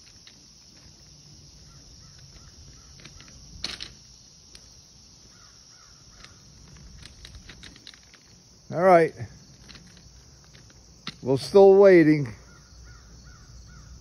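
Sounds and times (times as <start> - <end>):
faint bird calls: 1.6 - 3.4, 5.2 - 6.6, 12.2 - 14.0.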